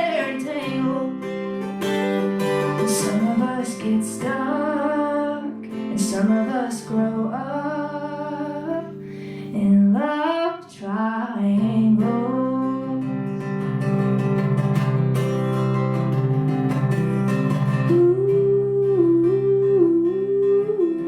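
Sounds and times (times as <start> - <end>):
woman singing: 0.0 - 1.6, 2.5 - 13.4, 17.8 - 21.0
strummed acoustic guitar: 0.0 - 21.0.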